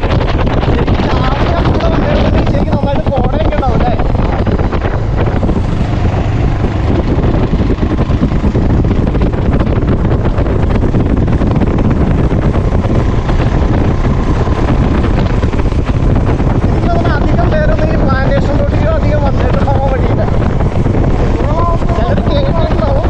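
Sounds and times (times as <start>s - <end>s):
motorcycle engine running: 0.0s - 23.0s
wind buffeting microphone: 0.0s - 23.0s.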